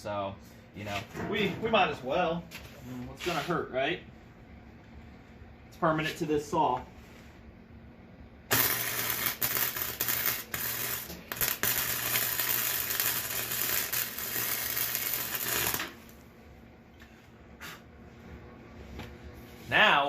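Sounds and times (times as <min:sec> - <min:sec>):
low electrical hum: 0:00.0 - 0:20.0
arc welder crackling: 0:08.5 - 0:16.3.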